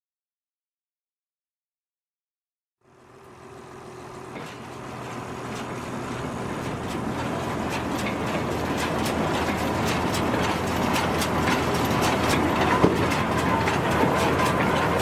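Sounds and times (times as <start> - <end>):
baler machinery running: 2.8 - 15.0
rattling clatter: 4.2 - 15.0.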